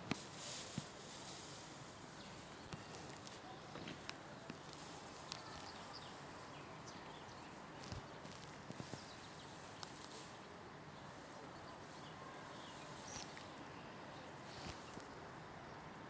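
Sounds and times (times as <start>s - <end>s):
faint clicks: 9.8s - 10.2s.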